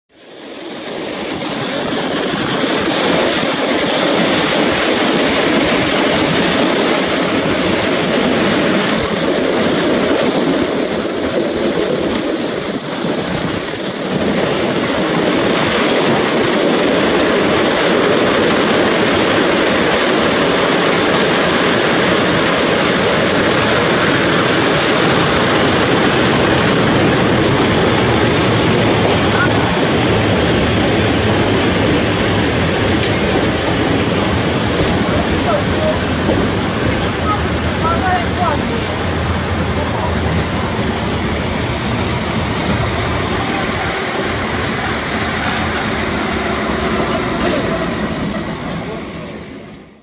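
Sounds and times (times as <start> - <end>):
train coaches rolling and rumbling: 0.2 - 50.0
high brake squeal: 2.5 - 5.0, 6.3 - 17.3, 44.7 - 49.3.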